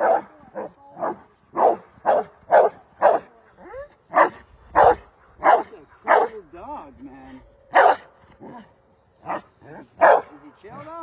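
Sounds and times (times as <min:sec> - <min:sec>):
dog barking: 0:00.0 - 0:00.3, 0:01.0 - 0:03.3, 0:04.1 - 0:06.4, 0:07.7 - 0:08.1, 0:10.0 - 0:10.3.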